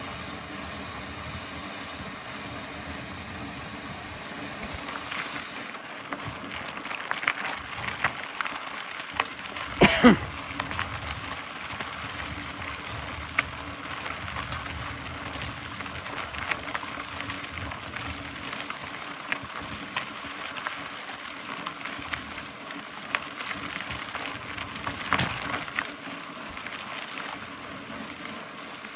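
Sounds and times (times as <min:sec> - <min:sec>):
bike tyres on gravel: 0:00.0 - 0:28.9
bike clicks and rattles: 0:23.2 - 0:26.1.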